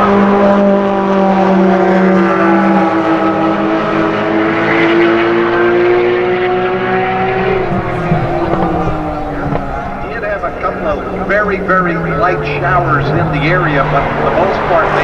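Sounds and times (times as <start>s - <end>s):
sports car engines at high revs: 0.0s - 15.0s
lower engine note: 5.9s - 15.0s.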